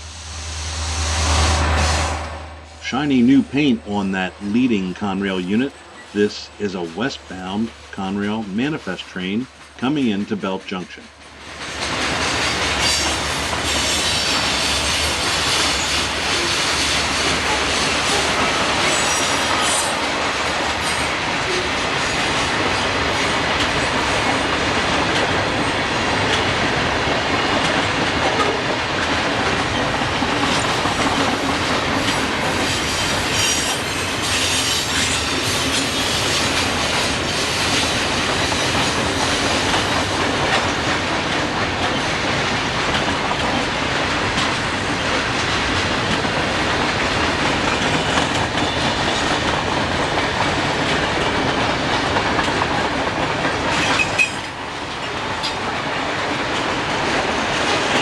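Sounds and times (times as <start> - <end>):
train cars rolling past: 0.0 - 58.0
wheels clicking over rail joints: 11.2 - 58.0.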